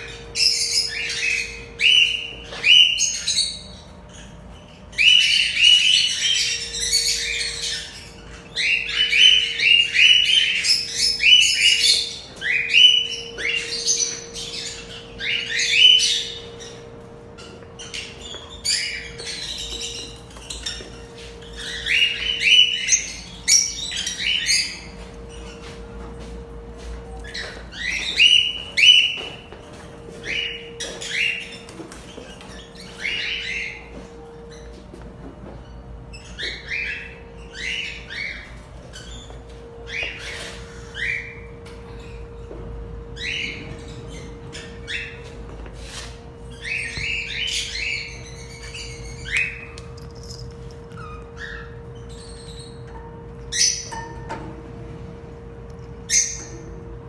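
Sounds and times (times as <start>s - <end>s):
parrots calling: 0.0s - 25.8s, 27.2s - 34.7s, 35.7s - 54.3s, 56.1s - 56.7s
steady hum: 0.0s - 57.0s.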